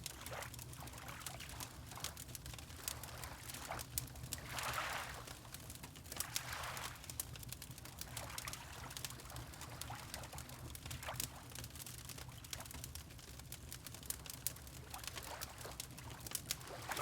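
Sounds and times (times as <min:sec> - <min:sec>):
water lapping: 0:04.4 - 0:05.4, 0:16.6 - 0:17.0
fireplace crackling: 0:15.8 - 0:16.6.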